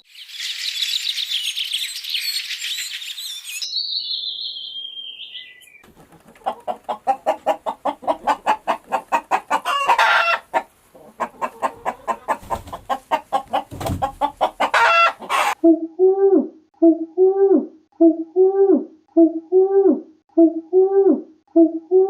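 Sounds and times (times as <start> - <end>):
chicken clucking and squawking: 5.8 - 15.6.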